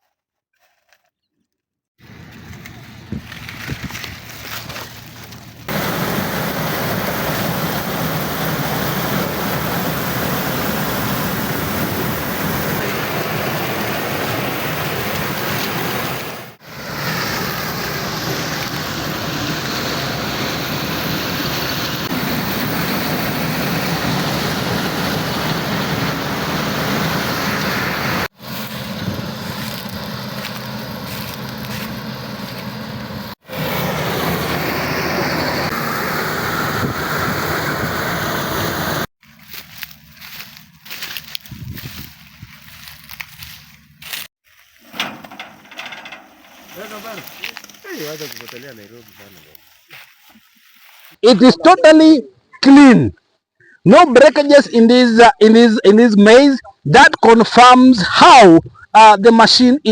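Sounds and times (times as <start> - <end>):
combine harvester running: 2.0 - 49.6.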